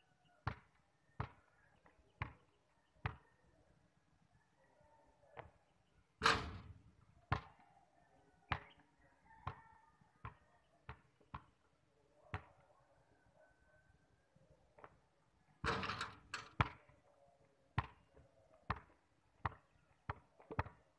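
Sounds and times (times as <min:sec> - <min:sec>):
basketball bouncing on concrete: 0:00.4 - 0:03.2, 0:07.3 - 0:07.6, 0:15.6 - 0:16.9, 0:17.8 - 0:18.0, 0:18.7 - 0:20.9
ball clanging on hoop: 0:15.6 - 0:16.8.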